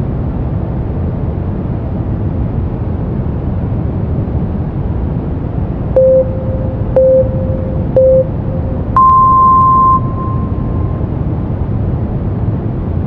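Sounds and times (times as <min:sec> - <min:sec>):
steady brown noise: 0:04.2 - 0:13.0
timer countdown beeps: 0:06.0 - 0:11.1.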